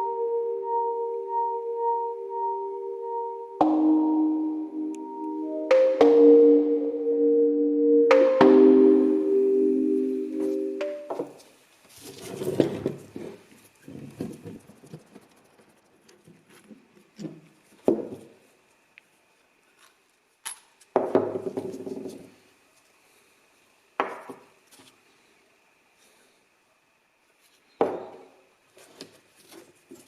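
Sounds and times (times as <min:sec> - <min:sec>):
sustained musical chord: 0:00.0 - 0:11.1.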